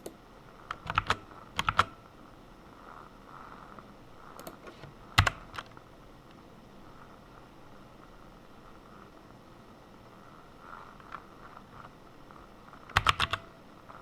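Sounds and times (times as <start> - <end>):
keyboard typing: 0.0 - 2.0, 4.4 - 5.8, 12.8 - 13.6.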